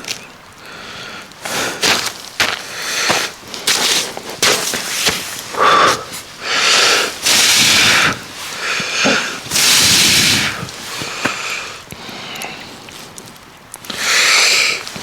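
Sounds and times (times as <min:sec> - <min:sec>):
person breathing hard: 0:00.6 - 0:03.4, 0:05.4 - 0:13.0, 0:13.9 - 0:15.0
person sniffing: 0:05.5 - 0:12.6, 0:13.9 - 0:14.9.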